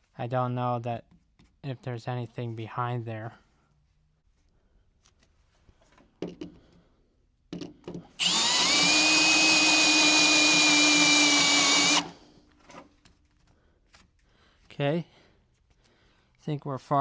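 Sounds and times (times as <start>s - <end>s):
power drill drilling into steel: 8.2s - 12.1s.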